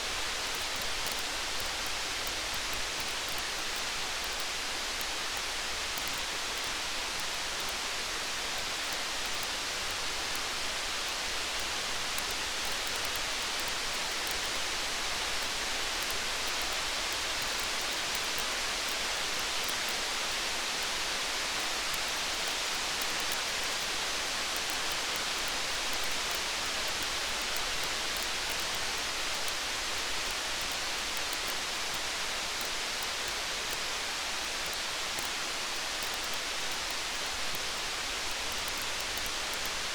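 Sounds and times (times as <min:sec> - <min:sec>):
faint campfire crackle: 0:00.0 - 0:39.9
rain hiss: 0:00.0 - 0:39.9.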